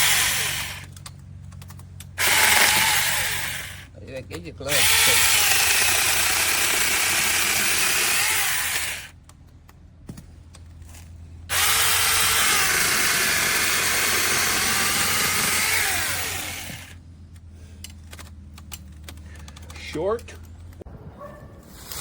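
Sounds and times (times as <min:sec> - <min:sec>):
battery chainsaw motor whine: 0:00.0 - 0:01.0, 0:02.2 - 0:03.9, 0:04.6 - 0:09.2, 0:11.5 - 0:17.0.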